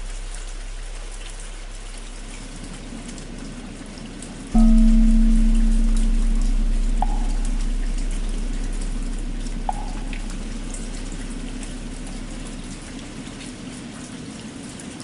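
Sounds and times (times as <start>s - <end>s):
steady rain falling: 0.0s - 15.0s
struck bell humming: 4.6s - 13.5s.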